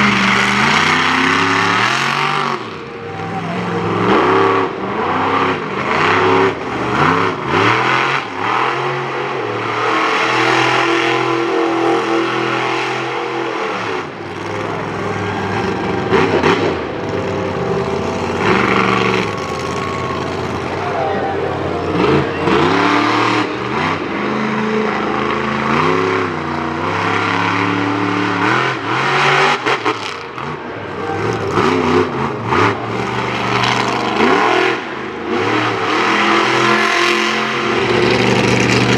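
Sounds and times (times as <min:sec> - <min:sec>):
truck engine revving hard: 0:00.0 - 0:38.9.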